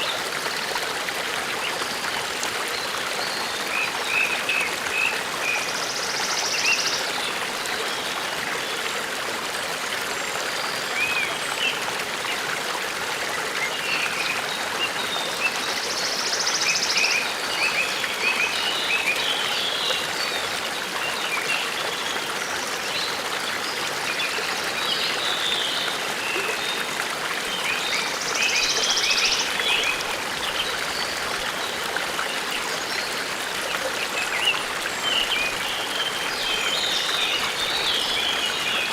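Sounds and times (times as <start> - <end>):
stream babbling: 0.0 - 38.9.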